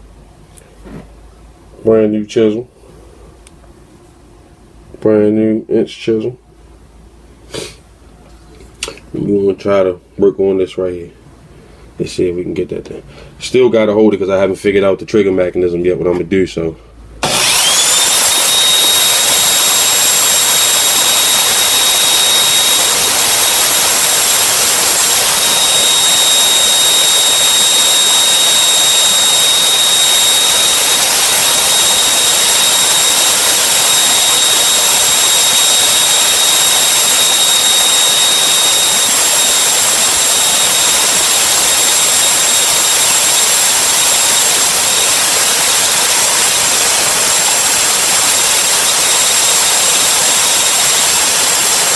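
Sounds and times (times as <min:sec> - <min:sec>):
electric drill whining: 0:17.2 - 0:51.9.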